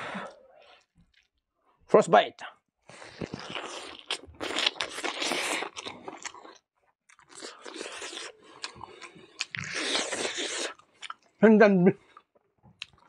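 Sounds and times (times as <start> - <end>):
person chewing and crunching food: 2.9 - 11.4, 12.0 - 13.0.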